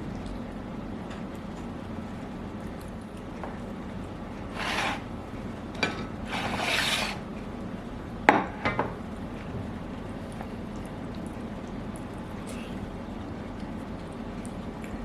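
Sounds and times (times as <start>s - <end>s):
cutlery scraping a plate: 4.5s - 5.1s, 5.8s - 7.2s.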